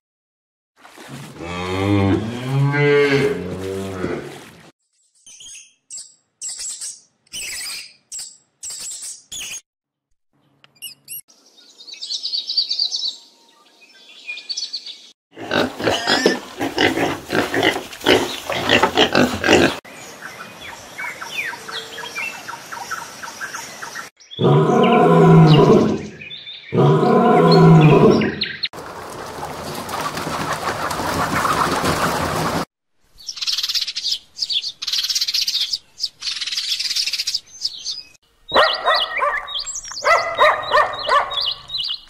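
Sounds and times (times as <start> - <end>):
long low animal calls: 26.7 - 28.4.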